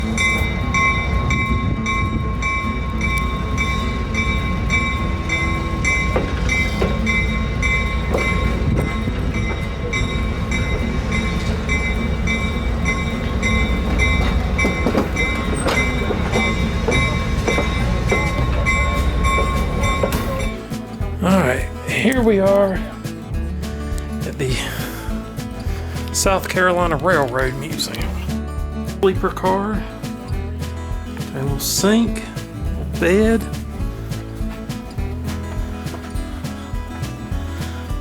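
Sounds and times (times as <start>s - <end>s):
high whining tones: 0.0s - 21.2s
train low rumble: 0.0s - 38.0s.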